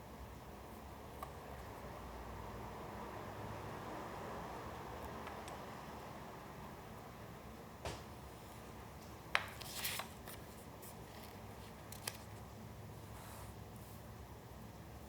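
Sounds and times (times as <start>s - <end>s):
paper rustling: 9.4s - 12.4s.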